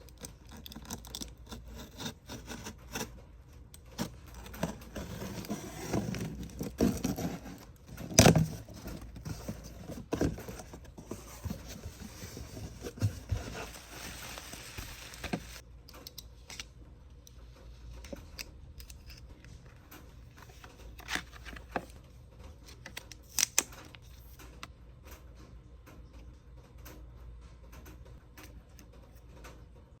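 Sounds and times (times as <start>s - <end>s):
plastic packaging rustling: 4.0s - 15.6s.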